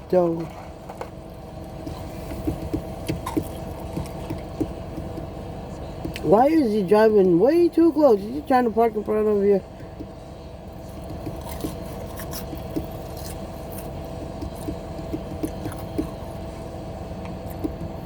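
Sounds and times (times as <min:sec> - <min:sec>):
steady low hum: 0:00.0 - 0:18.0
wet chewing of food: 0:00.8 - 0:05.3, 0:10.8 - 0:16.6.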